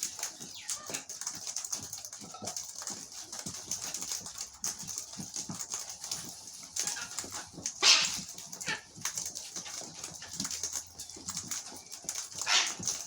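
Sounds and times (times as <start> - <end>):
cockatoos squawking: 7.8 - 8.2, 12.4 - 12.9.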